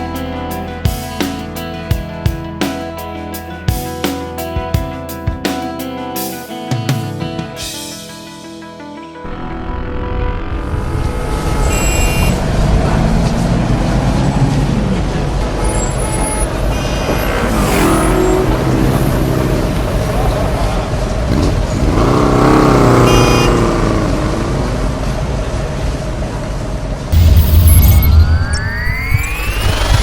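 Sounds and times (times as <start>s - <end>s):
traffic noise: 9.3s - 28.2s
vehicle engines passing: 10.4s - 27.6s.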